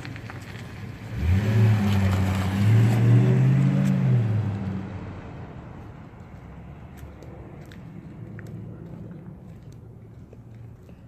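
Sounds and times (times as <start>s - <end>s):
truck engine pulling away: 0.0s - 5.8s.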